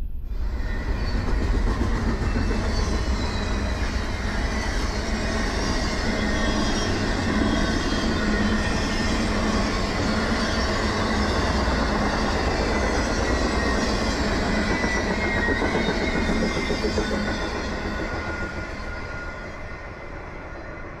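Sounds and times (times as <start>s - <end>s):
freight train rolling past: 0.0s - 21.0s
faint wheel squeal: 2.1s - 20.9s.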